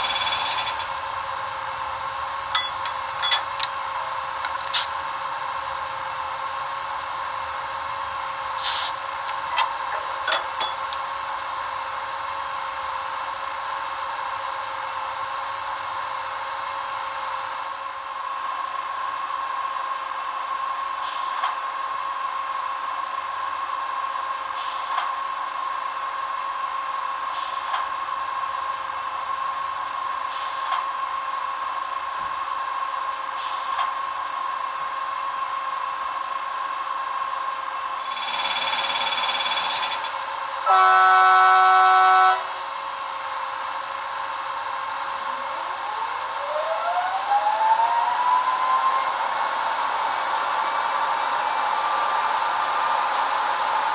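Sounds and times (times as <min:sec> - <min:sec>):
locomotive horn blast: 0:40.7 - 0:42.6.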